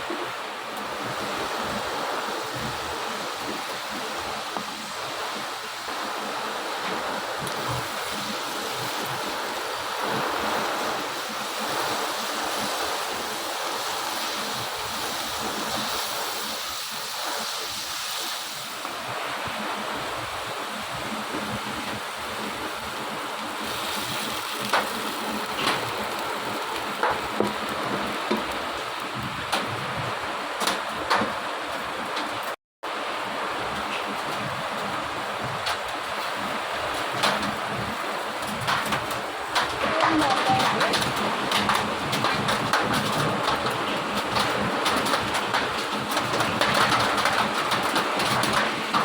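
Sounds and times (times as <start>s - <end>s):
pan sizzling: 23.6s - 28.6s.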